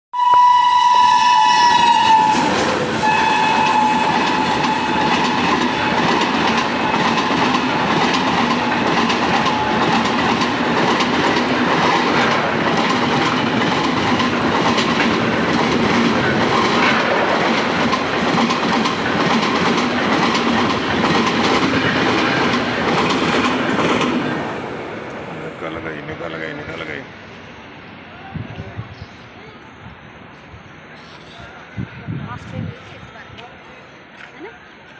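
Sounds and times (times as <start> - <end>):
train horn: 0.2 - 7.9, 8.6 - 10.1
train rumbling along track: 0.2 - 34.9.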